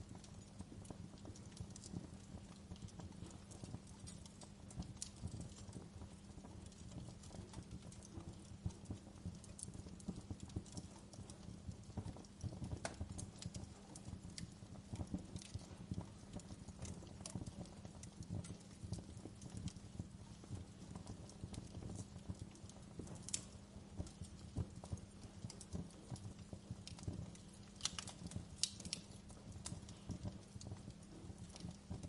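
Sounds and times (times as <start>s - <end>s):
logs crackling and popping: 0.0s - 32.0s
low rumble of flames: 0.0s - 32.0s.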